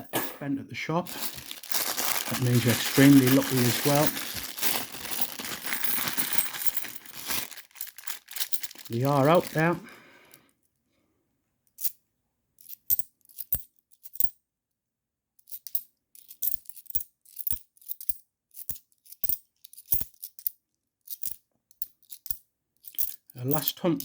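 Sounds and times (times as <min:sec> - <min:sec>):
coins clinking: 0:01.1 - 0:09.8.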